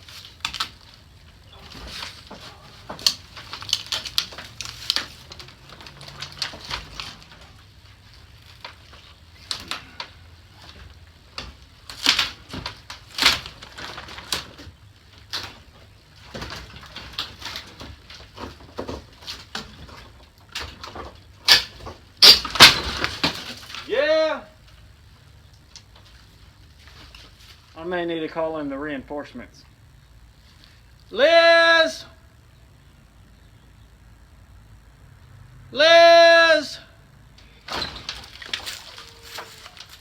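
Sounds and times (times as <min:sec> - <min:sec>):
material cracking and scraping: 0:00.0 - 0:24.0, 0:24.6 - 0:27.8, 0:37.4 - 0:40.0.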